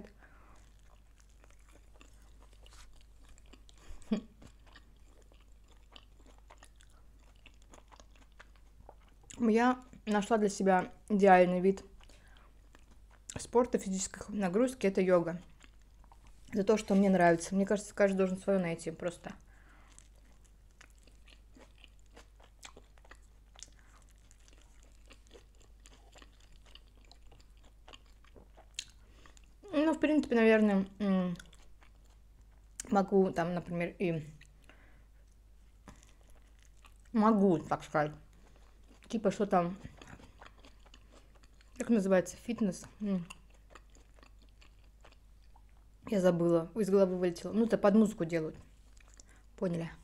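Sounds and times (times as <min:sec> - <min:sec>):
person chewing food: 0:00.0 - 0:10.1, 0:11.8 - 0:13.5, 0:15.4 - 0:17.2, 0:19.4 - 0:29.7, 0:31.4 - 0:32.9, 0:34.3 - 0:37.2, 0:38.1 - 0:42.0, 0:42.6 - 0:46.0, 0:48.6 - 0:49.6.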